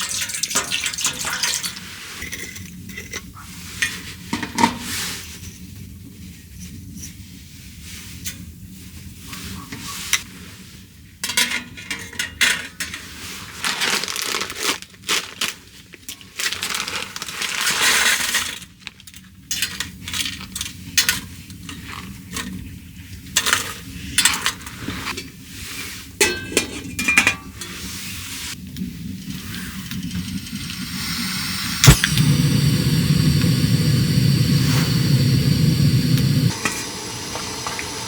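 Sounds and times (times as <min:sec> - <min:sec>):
rustling of handled objects: 0:13.2 - 0:19.0.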